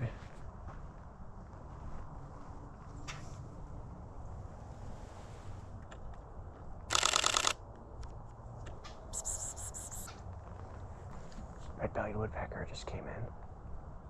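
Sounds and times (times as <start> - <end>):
camera shutter burst: 6.9 - 7.6.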